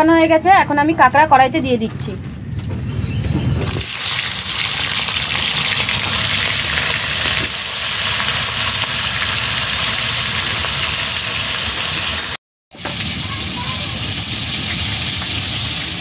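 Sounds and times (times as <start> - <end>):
crab frying in hot oil: 3.6 - 16.0.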